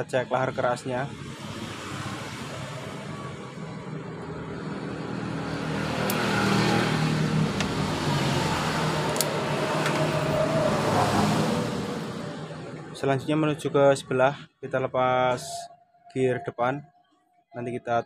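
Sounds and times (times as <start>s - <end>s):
vehicle engine running: 2.6s - 13.2s.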